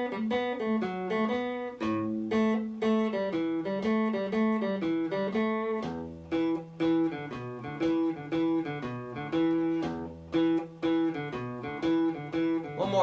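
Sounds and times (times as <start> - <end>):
guitar playing blues riff: 0.0 - 13.0.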